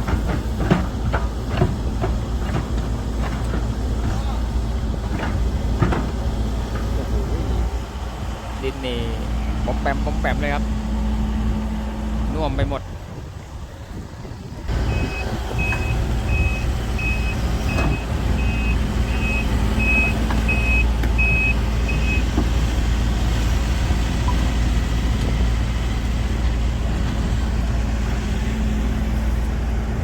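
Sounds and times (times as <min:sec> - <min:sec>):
diesel engine running: 0:00.0 - 0:30.0
reversing alarm beeping: 0:14.8 - 0:22.3.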